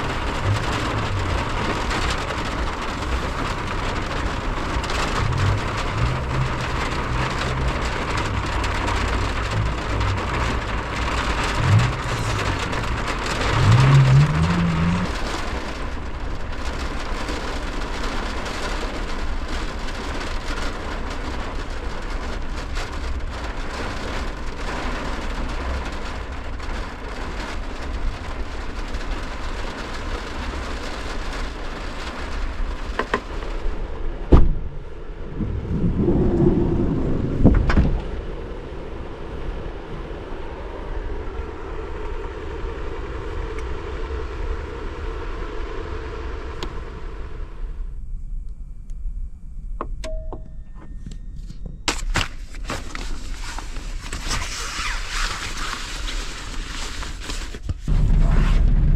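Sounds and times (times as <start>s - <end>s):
steady rain falling: 0.0s - 48.0s, 52.0s - 58.9s
low rumble: 0.0s - 51.9s, 57.7s - 58.9s.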